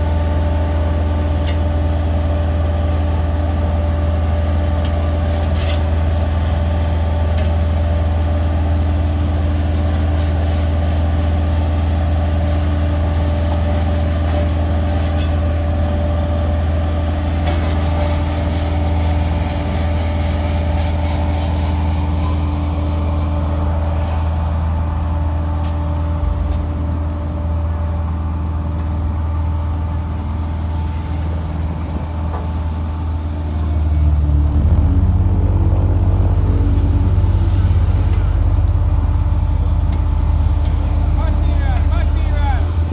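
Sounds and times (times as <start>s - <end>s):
motor engine humming: 11.0s - 42.9s.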